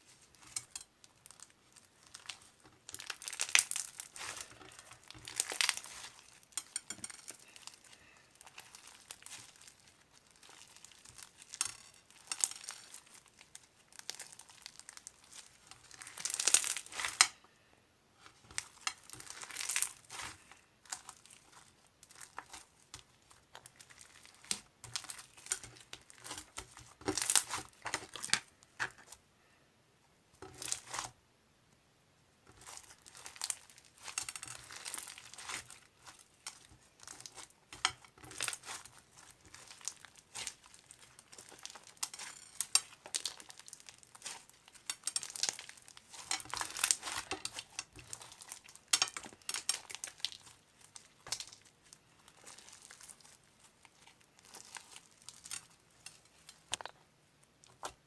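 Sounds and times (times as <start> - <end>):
paper or plastic crinkling: 0.0 - 17.4, 18.2 - 29.2, 30.4 - 31.1, 32.5 - 56.9.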